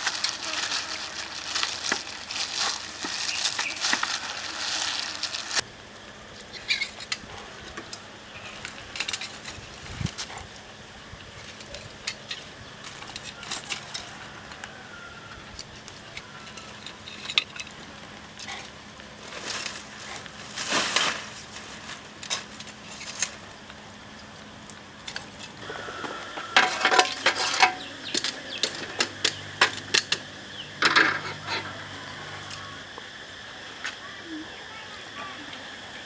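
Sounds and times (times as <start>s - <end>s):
utensils and dishes clattering: 0.0s - 5.6s, 6.6s - 10.5s, 11.4s - 14.6s, 15.9s - 23.6s, 25.1s - 32.8s.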